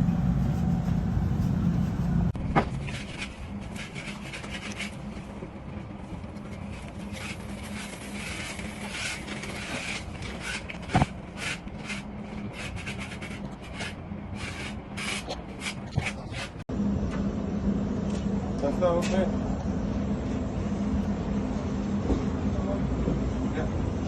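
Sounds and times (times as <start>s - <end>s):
low hum: 0.0s - 15.1s, 15.8s - 24.0s
hand tool scraping mortar: 2.8s - 5.0s, 6.5s - 16.6s.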